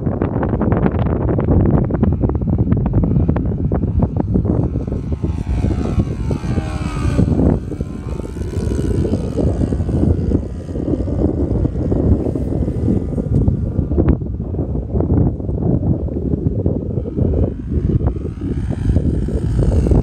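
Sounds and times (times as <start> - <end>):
propeller plane engine drone: 0.0 - 20.0
wind buffeting microphone: 0.0 - 20.0.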